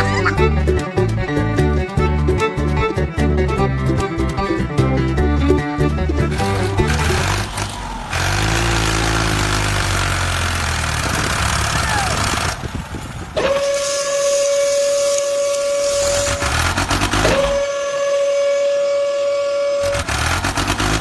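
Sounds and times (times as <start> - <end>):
engine rumbling: 0.0 - 21.0
long horn blast: 13.4 - 21.0
loud hiss: 13.6 - 16.7.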